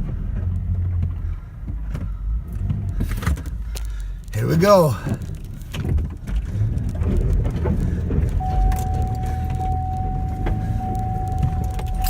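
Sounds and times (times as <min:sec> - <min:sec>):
car engine running under load: 0:00.0 - 0:12.0
steady high tone: 0:08.4 - 0:12.0.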